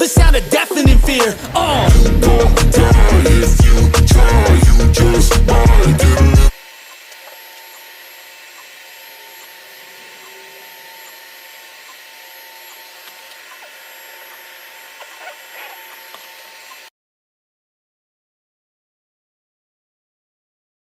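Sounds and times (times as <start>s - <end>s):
printer fans whirring: 6.5s - 16.9s.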